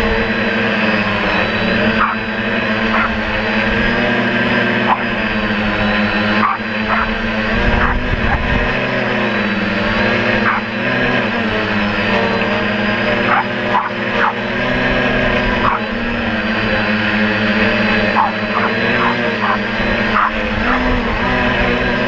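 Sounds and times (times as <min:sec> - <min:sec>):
quadcopter motors whining: 0:00.0 - 0:22.0
wind rumbling on microphone: 0:07.1 - 0:09.0.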